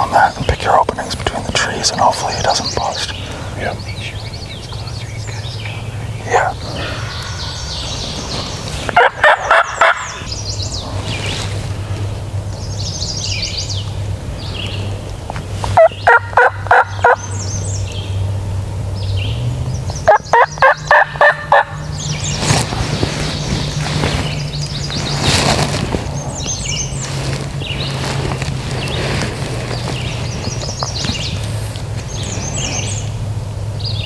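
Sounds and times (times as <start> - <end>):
turkey gobbling: 0.0 - 0.9, 6.2 - 10.3, 15.7 - 17.3, 20.0 - 22.4
songbirds chirping: 0.0 - 34.0.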